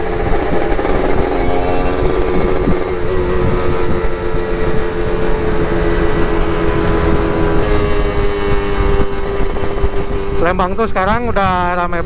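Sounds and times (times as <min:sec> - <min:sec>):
two-stroke motorcycle engine: 0:00.0 - 0:11.8
wind rumble on microphone: 0:00.0 - 0:12.0.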